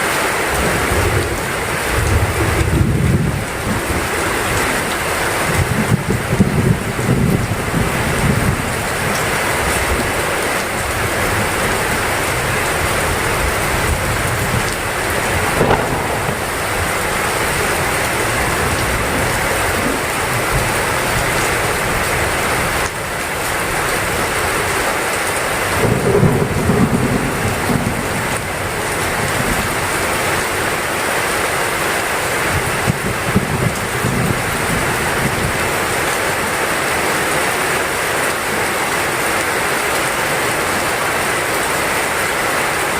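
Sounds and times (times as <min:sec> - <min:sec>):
heavy rain pouring: 0:00.0 - 0:42.9
low rumble of thunder: 0:00.7 - 0:04.1, 0:05.4 - 0:08.7, 0:12.8 - 0:22.1, 0:25.7 - 0:29.7, 0:32.8 - 0:35.6.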